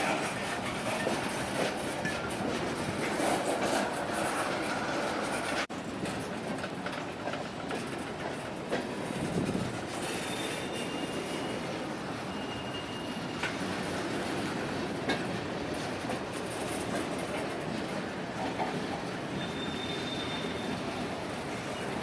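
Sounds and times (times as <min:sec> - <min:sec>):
train wheels rumbling on rails: 0:00.0 - 0:22.0
high wheel squeal: 0:10.0 - 0:13.6, 0:19.3 - 0:22.0.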